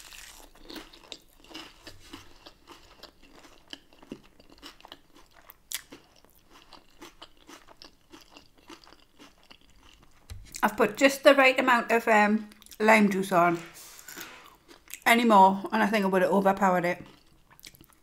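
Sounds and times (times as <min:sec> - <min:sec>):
close chewing crunches: 0:00.0 - 0:10.6, 0:17.0 - 0:18.0.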